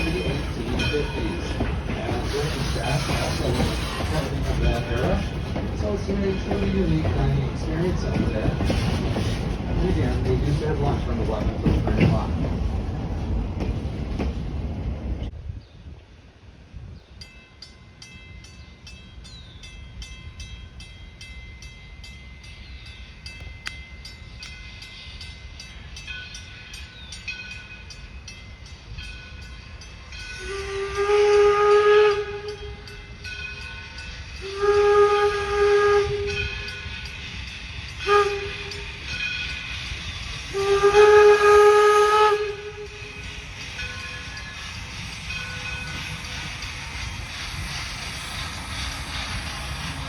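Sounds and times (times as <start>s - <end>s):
steam locomotive rumbling and ticking: 0.0s - 15.4s, 17.2s - 50.0s
steam whistle blasts: 30.3s - 32.8s, 34.4s - 36.8s, 38.0s - 39.0s, 40.5s - 43.1s.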